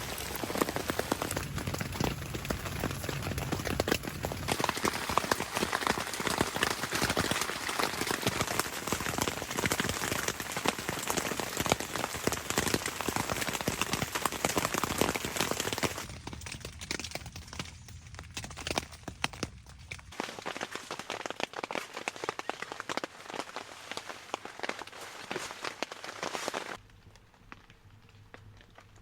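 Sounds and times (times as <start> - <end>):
rain falling: 0.0 - 16.1.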